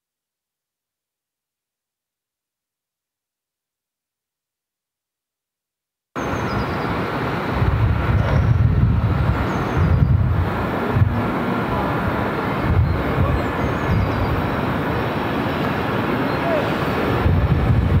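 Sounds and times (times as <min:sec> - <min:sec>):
train rumbling: 0:06.2 - 0:18.0.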